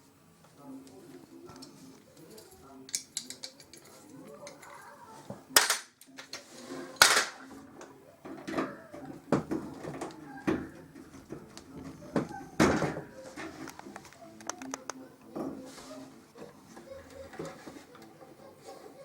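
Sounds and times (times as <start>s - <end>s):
metal tools clattering: 2.2s - 4.8s.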